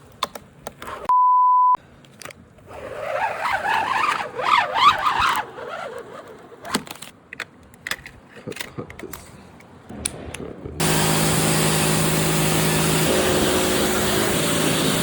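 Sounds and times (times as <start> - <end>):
short steady beep: 1.1 - 1.8
small clicks and handling: 6.0 - 10.2.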